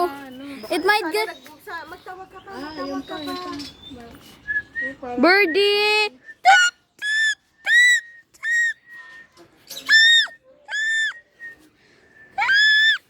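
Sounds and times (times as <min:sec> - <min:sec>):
person making bird-like calls: 0:06.4 - 0:08.8, 0:09.9 - 0:11.2, 0:12.4 - 0:13.0.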